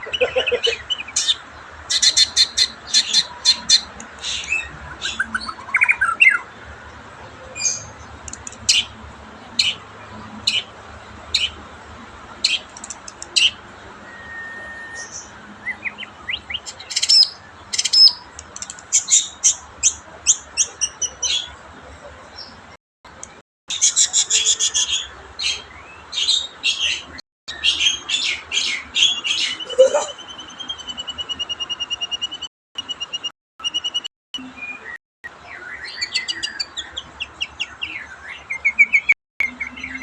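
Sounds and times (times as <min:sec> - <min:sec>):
bird chirping: 0:00.0 - 0:06.5, 0:07.4 - 0:11.6, 0:12.3 - 0:40.0
short rising bird whistles: 0:14.0 - 0:15.2.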